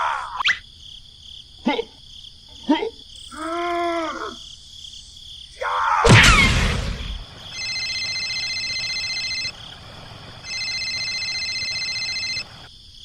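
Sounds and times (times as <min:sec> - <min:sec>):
loud crash: 0:06.1 - 0:07.3
electronic buzzing tone: 0:07.5 - 0:09.6, 0:10.4 - 0:12.7.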